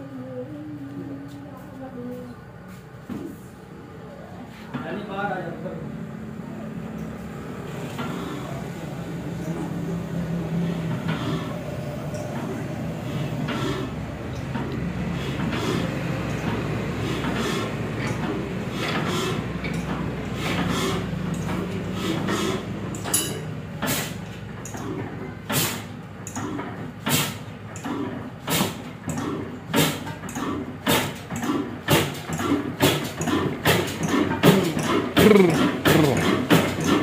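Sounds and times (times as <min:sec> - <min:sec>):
diesel engine running: 0:34.4 - 0:37.0.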